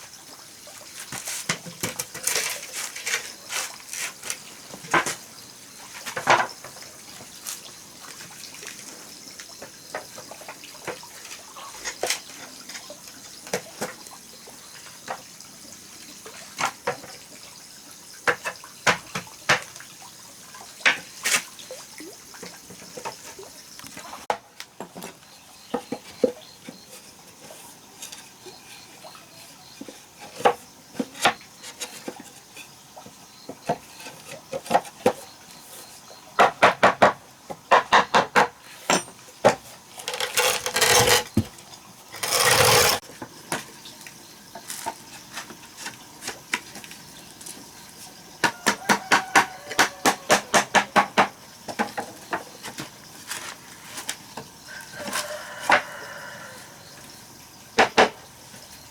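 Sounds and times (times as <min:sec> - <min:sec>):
dishes and utensils clinking: 0:38.9 - 0:39.2.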